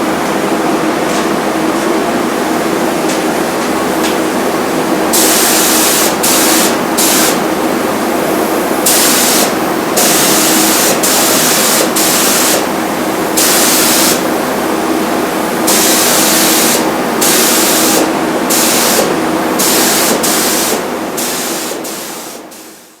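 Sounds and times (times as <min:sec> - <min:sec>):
steady compressor drone: 0:00.0 - 0:23.0
spray gun air hiss: 0:05.1 - 0:07.5, 0:08.8 - 0:12.7, 0:13.3 - 0:14.3, 0:15.3 - 0:22.9.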